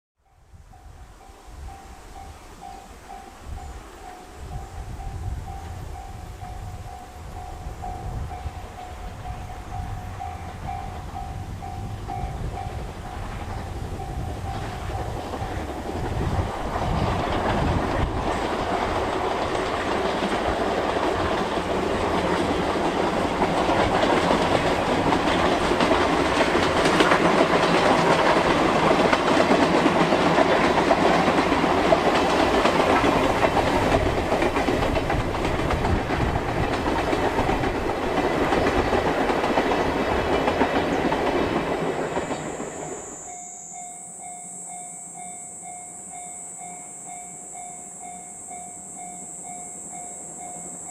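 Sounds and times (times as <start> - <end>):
steam locomotive running past: 0.2 - 50.9
wheels clattering over rail joints: 12.1 - 42.8.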